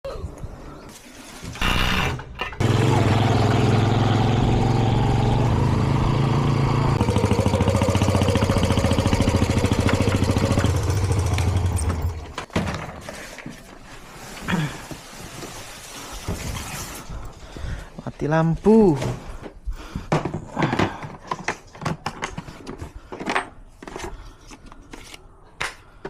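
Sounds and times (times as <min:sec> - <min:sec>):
small engine humming: 0:02.6 - 0:12.3.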